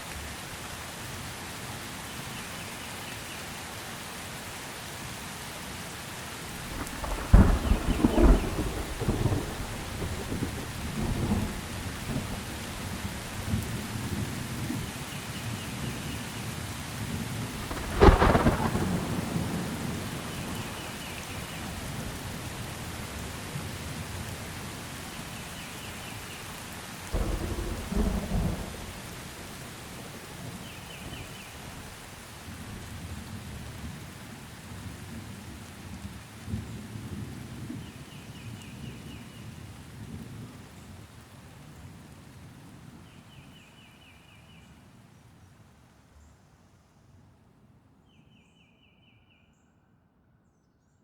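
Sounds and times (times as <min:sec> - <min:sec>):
steady rain: 0:00.0 - 0:46.7
thunder crack and rumble: 0:06.5 - 0:14.9, 0:17.3 - 0:22.3, 0:27.1 - 0:34.0.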